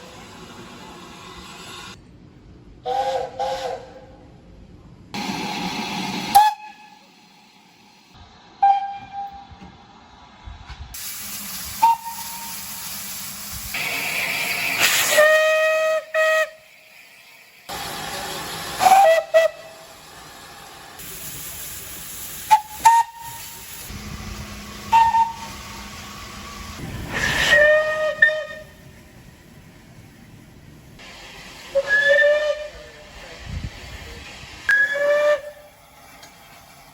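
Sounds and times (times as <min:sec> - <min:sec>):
steam whistle blasts: 0:02.9 - 0:04.0, 0:06.2 - 0:07.1, 0:08.6 - 0:09.5, 0:11.7 - 0:12.9, 0:14.8 - 0:16.8, 0:18.8 - 0:19.8, 0:22.5 - 0:23.7, 0:24.9 - 0:25.9, 0:27.1 - 0:28.8, 0:31.7 - 0:33.1, 0:34.7 - 0:35.8
steam hissing: 0:05.2 - 0:08.2, 0:10.8 - 0:36.9.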